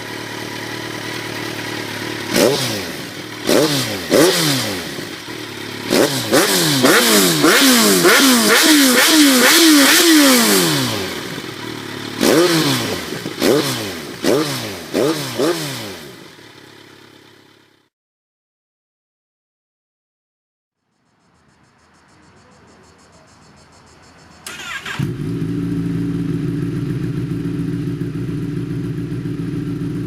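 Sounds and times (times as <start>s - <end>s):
motorcycle engine revving: 0.0s - 17.9s, 24.4s - 30.0s.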